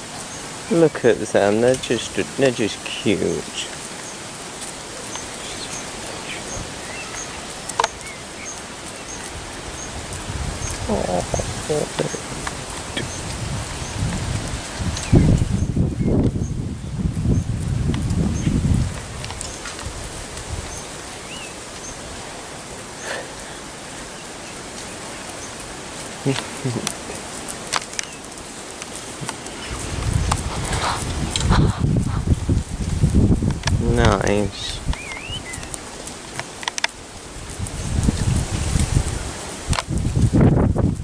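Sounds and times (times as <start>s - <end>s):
steady outdoor hiss: 0.0s - 41.0s
small birds chirping: 0.2s - 38.4s
soft ticks: 6.9s - 9.4s, 17.9s - 18.2s, 34.9s - 37.0s.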